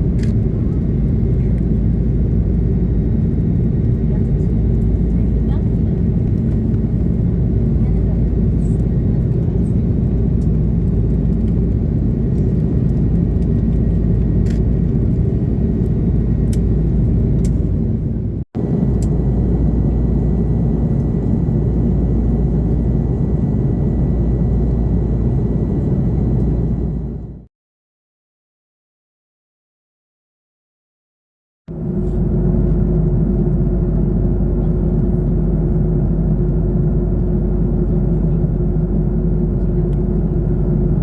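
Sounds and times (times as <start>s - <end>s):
airplane cabin rumble: 0.0s - 27.5s, 31.7s - 41.0s.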